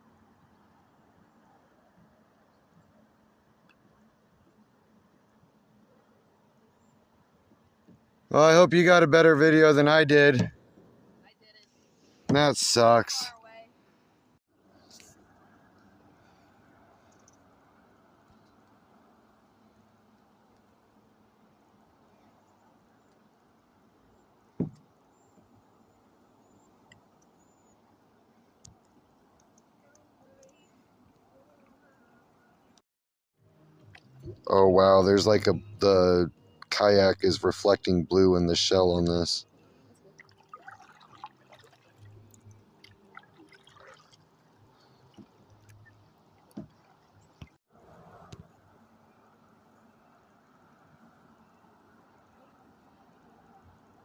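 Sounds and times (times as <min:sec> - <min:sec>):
low steady hiss: 0:00.0 - 0:32.8, 0:33.4 - 0:54.0
small ticks: 0:28.6 - 0:31.8
faint water dripping: 0:39.6 - 0:47.6.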